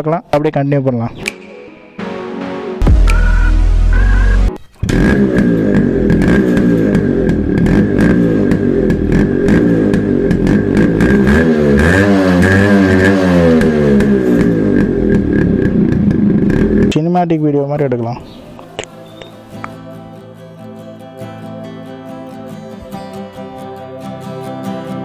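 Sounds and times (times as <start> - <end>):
two-stroke motorcycle engine revving: 4.8 - 16.9.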